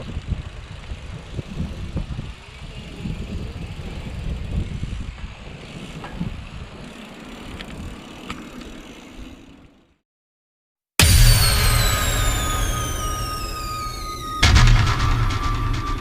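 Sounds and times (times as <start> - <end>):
light clicks of bicycle: 0.0 - 9.7
wind and road noise: 0.0 - 10.0.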